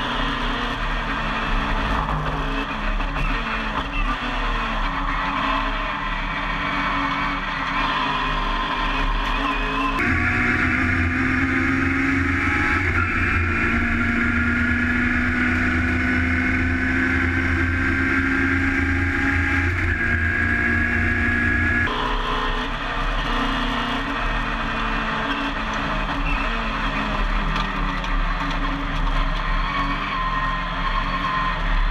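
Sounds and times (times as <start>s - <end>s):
race car engine running hard: 0.0s - 31.9s.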